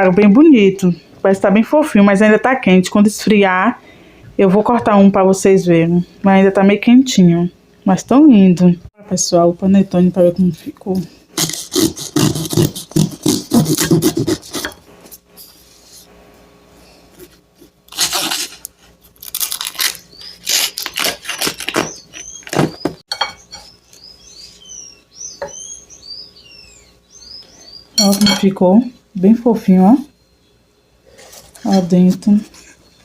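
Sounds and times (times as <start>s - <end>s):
knife sawing through crusty bread: 11.4s - 14.8s, 17.9s - 22.4s
small birds chirping: 19.8s - 28.4s.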